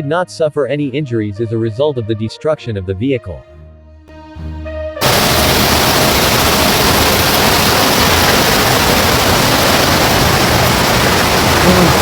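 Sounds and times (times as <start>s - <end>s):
floodwater rushing: 5.0s - 12.0s.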